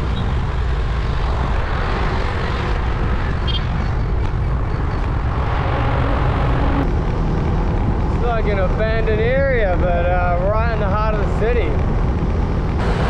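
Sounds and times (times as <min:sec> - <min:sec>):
surrounding traffic: 0:00.0 - 0:13.0
wind rumbling on microphone: 0:00.0 - 0:13.0.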